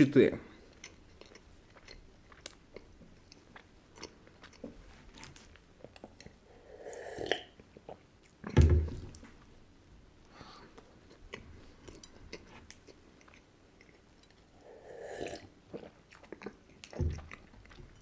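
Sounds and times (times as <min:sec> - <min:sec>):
chewing crumbly cookies: 0:00.5 - 0:06.4, 0:10.6 - 0:14.7, 0:15.3 - 0:18.0
low thump: 0:08.5 - 0:09.2
drinking from a mug: 0:14.2 - 0:17.4.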